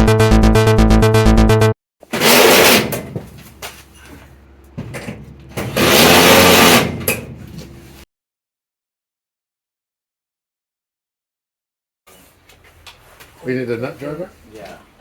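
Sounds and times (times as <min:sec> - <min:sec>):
power drill running: 0:05.8 - 0:06.8.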